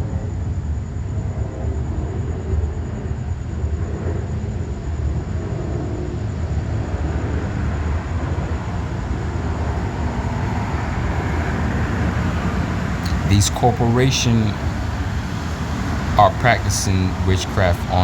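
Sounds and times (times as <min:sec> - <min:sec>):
low rumbling background noise: 0:00.0 - 0:18.0
thin high whine: 0:13.0 - 0:18.0.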